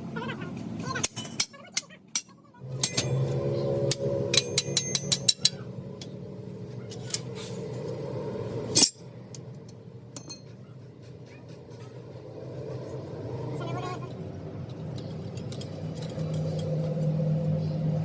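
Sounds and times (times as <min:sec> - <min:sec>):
metal taps and clinks: 0:01.0 - 0:03.2, 0:03.9 - 0:06.2, 0:09.6 - 0:10.6
steady machine hum: 0:02.6 - 0:11.1.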